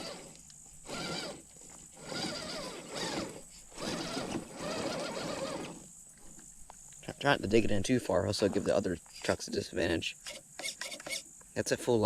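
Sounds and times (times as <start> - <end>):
electric motor whining: 0.0 - 5.9.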